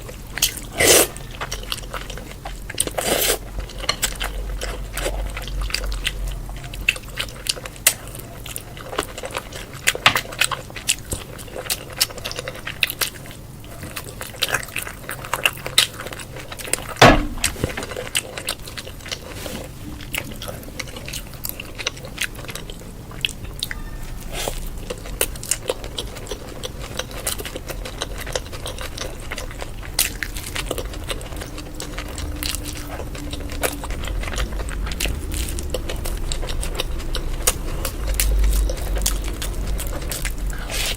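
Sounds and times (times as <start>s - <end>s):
wet chewing and biting: 20.1s - 40.9s.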